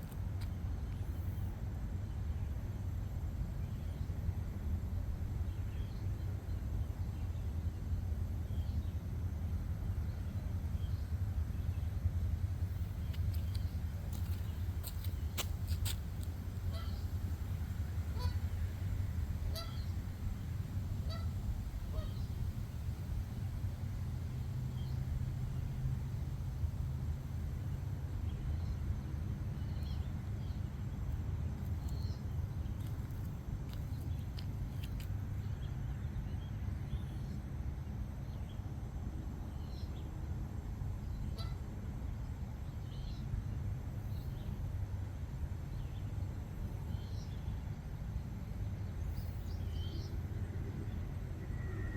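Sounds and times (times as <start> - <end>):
steady low rumble: 0.0 - 51.9
geese honking: 16.6 - 17.3, 17.9 - 20.2, 20.9 - 22.4, 41.4 - 41.6.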